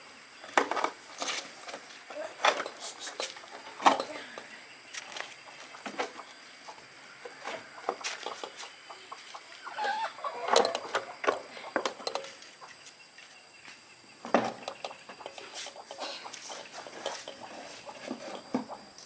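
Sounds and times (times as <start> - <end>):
chickens clucking: 0.4 - 19.0.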